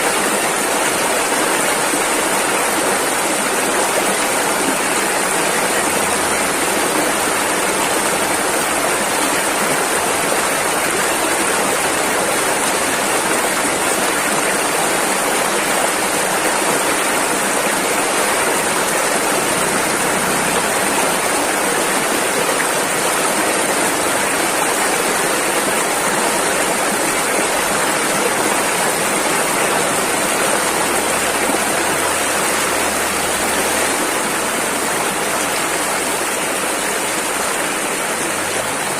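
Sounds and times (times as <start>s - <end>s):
rushing river rapids: 0.0s - 38.9s.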